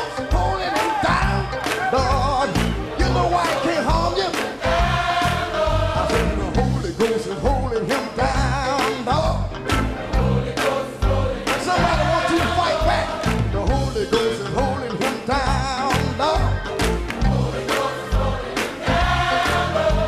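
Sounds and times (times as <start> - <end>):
gospel singing: 0.0 - 20.0
drumbeat and bass: 0.2 - 10.5, 11.1 - 20.0.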